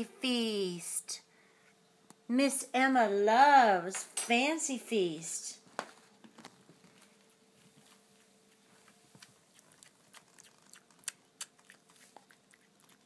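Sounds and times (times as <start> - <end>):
cat licking wet food: 8.5 - 13.0.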